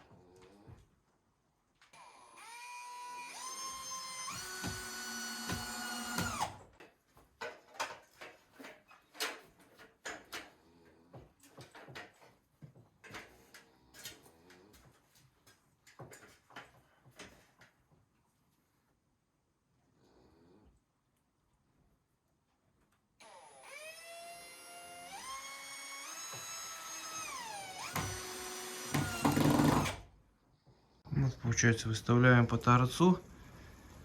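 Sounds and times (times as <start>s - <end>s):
power drill whining: 1.9s - 6.8s, 23.2s - 30.1s
knocks and clatter of timber and tools: 4.4s - 18.1s.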